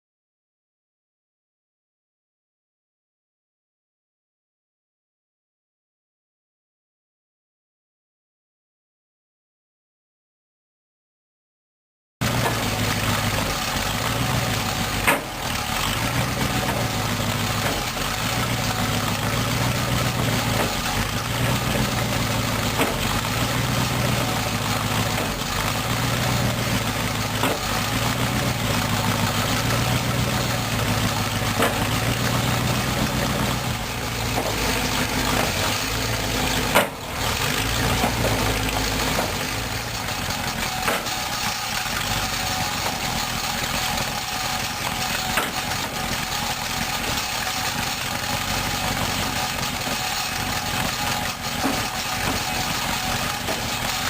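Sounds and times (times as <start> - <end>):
tractor engine idling: 12.2 - 54.0.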